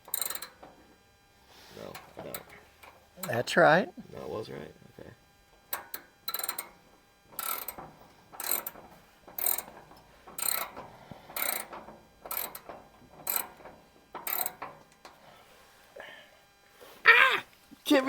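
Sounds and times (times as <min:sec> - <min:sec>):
socket ratchet clicking: 0:00.1 - 0:00.7, 0:05.8 - 0:06.7, 0:07.4 - 0:07.8, 0:08.4 - 0:08.8, 0:10.4 - 0:10.8, 0:11.4 - 0:11.7, 0:12.3 - 0:12.7, 0:13.3 - 0:13.6, 0:14.2 - 0:14.7.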